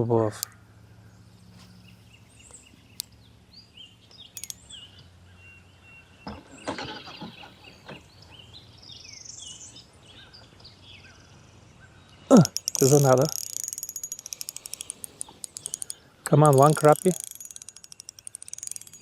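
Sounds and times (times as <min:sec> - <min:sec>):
sharp clicks and knocks: 0:04.4 - 0:04.6, 0:12.4 - 0:19.0.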